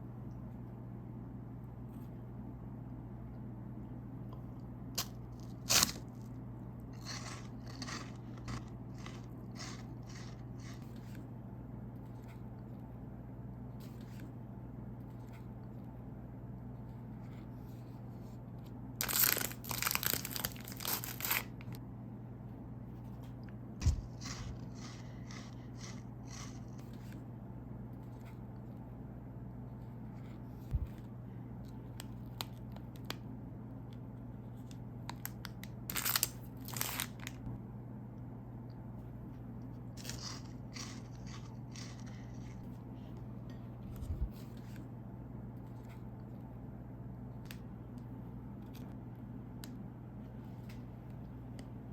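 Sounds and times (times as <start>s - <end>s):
plastic wrapper crinkling and tearing: 19.0s - 21.8s, 35.1s - 37.4s, 40.0s - 42.6s.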